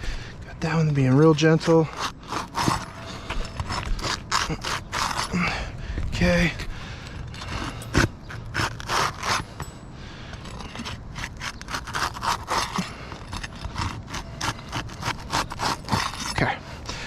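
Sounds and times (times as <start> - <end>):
scraping on roof shingles: 10.6 - 17.0.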